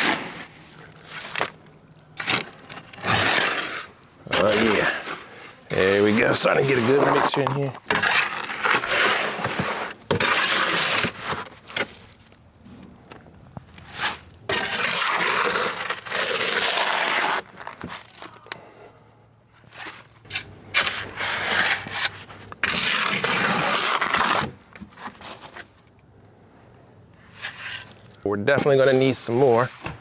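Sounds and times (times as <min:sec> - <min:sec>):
tool scraping wet concrete: 0:00.0 - 0:01.6, 0:02.2 - 0:12.1, 0:13.8 - 0:18.3, 0:19.7 - 0:25.7, 0:27.2 - 0:30.0.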